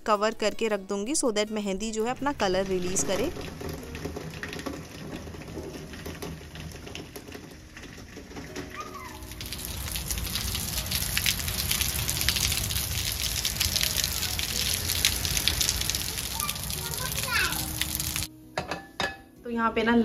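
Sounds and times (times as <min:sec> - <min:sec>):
rain falling: 0:02.3 - 0:18.3.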